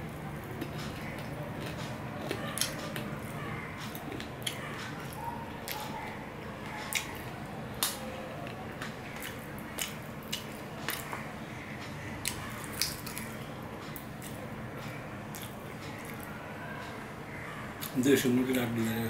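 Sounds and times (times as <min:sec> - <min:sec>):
chewing: 0:00.4 - 0:17.0
mouth smacks and clicks: 0:09.2 - 0:11.2.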